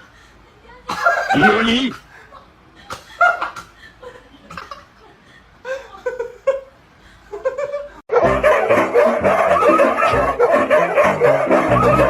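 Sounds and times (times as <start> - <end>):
person laughing: 0.9 - 8.0.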